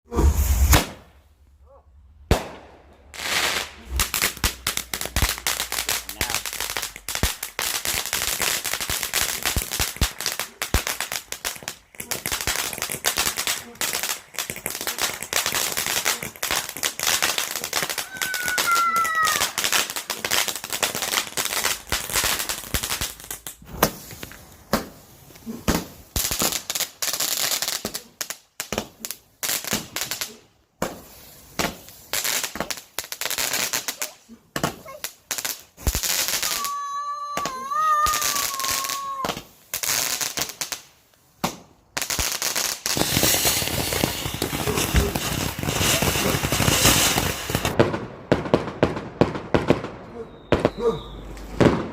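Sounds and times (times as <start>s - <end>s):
fireworks cracking and banging: 0.1s - 1.4s, 2.3s - 51.9s.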